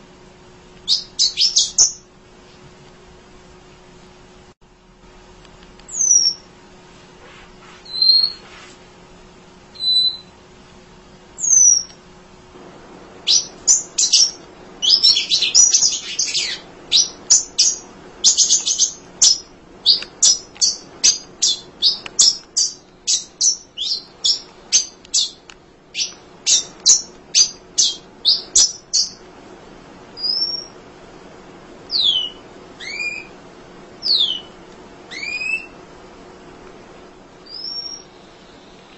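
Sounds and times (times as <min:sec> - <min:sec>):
sharp high bird chirps: 0:00.8 - 0:02.1, 0:05.9 - 0:06.5, 0:07.8 - 0:08.4, 0:09.8 - 0:10.3, 0:11.4 - 0:12.0, 0:13.3 - 0:29.2, 0:30.2 - 0:30.8, 0:31.9 - 0:33.3, 0:34.0 - 0:35.8, 0:37.5 - 0:38.2
bird calls sliding downward: 0:31.9 - 0:33.3, 0:35.1 - 0:35.7.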